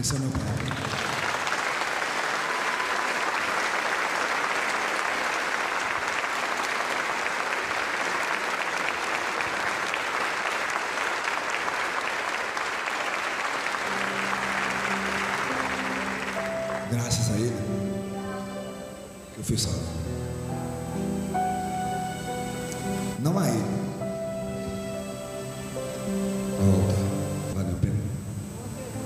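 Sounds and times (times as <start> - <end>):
congregation applauding: 0.0 - 19.7
music: 13.2 - 29.0.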